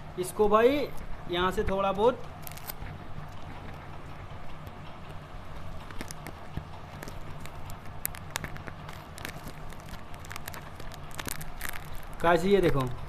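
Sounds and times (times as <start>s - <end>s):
steady low hum: 0.0s - 13.0s
tape handling clicks and rustles: 2.2s - 3.9s, 4.5s - 13.0s.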